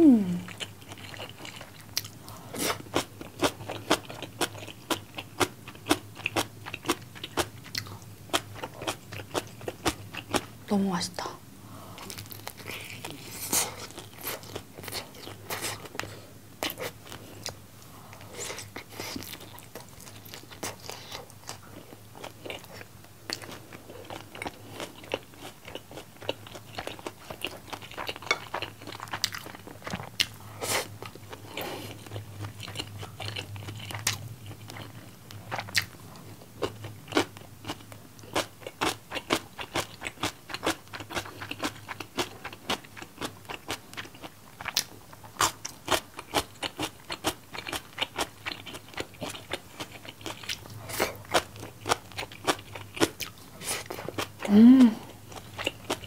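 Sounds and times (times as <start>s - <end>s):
crunchy chewing of fried chicken: 0.5s - 10.6s, 11.9s - 56.0s.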